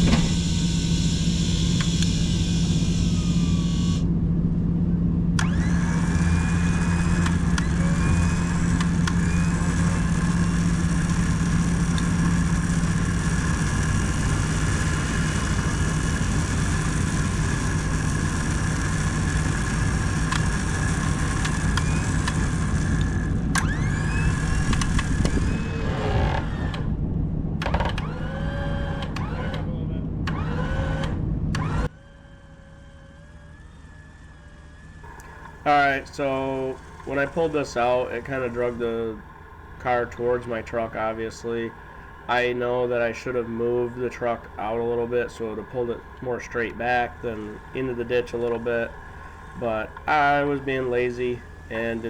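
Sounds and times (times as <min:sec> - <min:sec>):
electric winch humming: 0:00.0 - 0:52.0
faint rising squeaks: 0:00.0 - 0:52.0.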